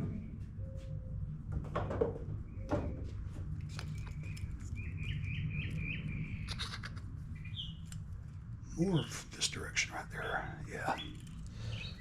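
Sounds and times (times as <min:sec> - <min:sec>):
small bird chirping: 0:03.8 - 0:08.1, 0:10.8 - 0:12.0.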